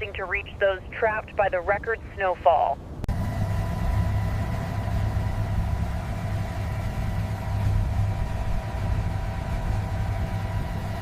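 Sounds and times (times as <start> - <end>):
vehicle engine idling: 3.1 - 11.0.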